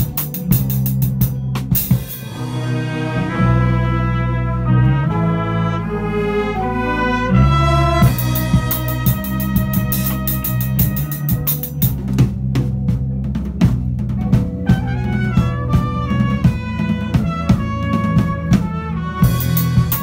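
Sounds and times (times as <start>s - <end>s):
cymbals: 0.0s - 3.4s, 7.9s - 12.0s, 17.6s - 20.0s
big band funk jazz groove: 0.0s - 5.8s, 7.0s - 20.0s
stepping melody line: 0.0s - 20.0s.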